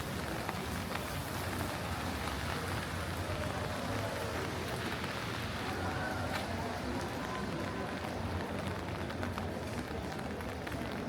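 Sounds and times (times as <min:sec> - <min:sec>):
rain falling on wet street: 0:00.0 - 0:11.0.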